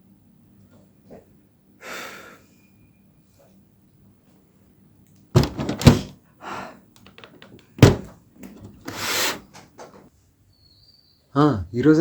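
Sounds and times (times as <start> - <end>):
thuds and knocks: 5.4 - 6.1, 7.2 - 8.9.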